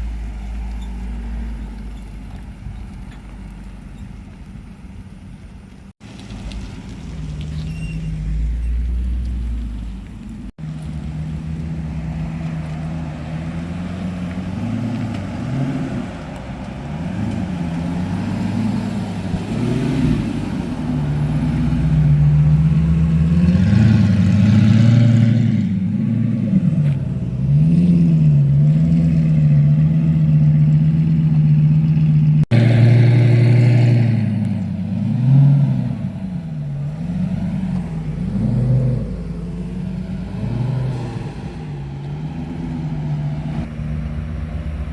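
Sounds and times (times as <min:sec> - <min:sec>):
car engine revving: 0:10.6 - 0:44.9.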